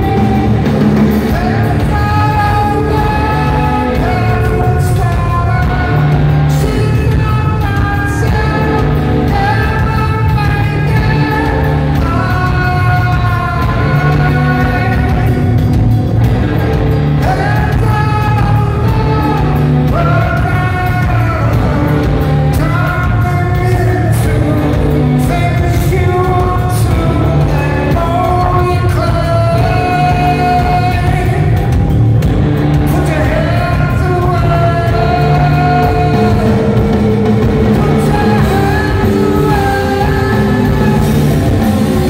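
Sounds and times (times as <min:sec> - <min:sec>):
man singing long notes: 0:00.0 - 0:15.6, 0:17.2 - 0:32.0, 0:32.6 - 0:42.0
live rock band playing: 0:00.0 - 0:42.0.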